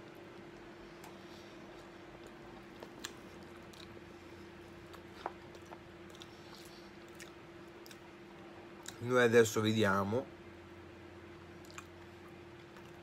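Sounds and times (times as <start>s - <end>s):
faint steady hum: 0.0s - 13.0s
person chewing: 0.1s - 8.1s, 11.6s - 13.0s.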